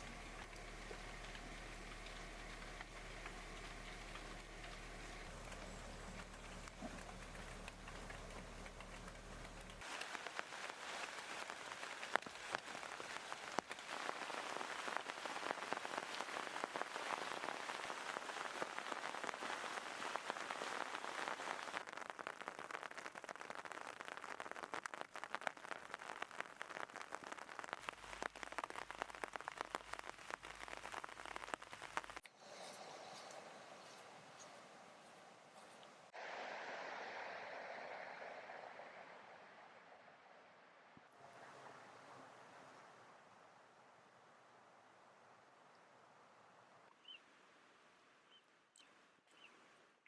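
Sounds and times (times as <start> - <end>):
water pattering and splashing: 0.0 - 32.3.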